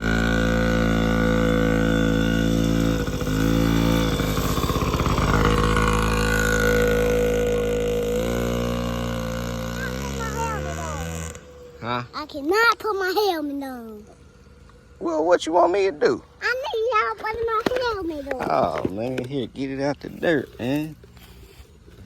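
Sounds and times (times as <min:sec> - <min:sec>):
small two-stroke engine idling: 0:00.0 - 0:22.0.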